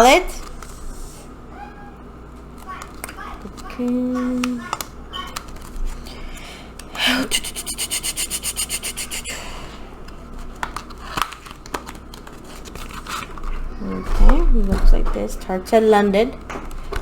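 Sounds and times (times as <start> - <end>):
packaging rubbing and scraping: 10.2 - 13.9.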